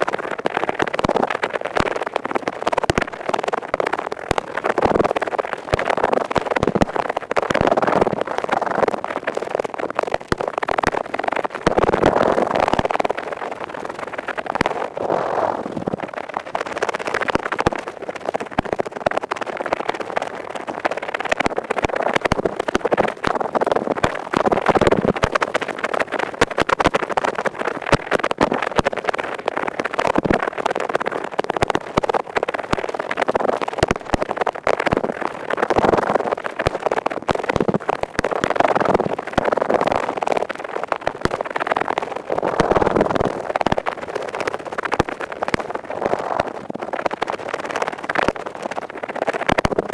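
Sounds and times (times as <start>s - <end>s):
earpick scraping inside ear: 14.7s - 16.0s.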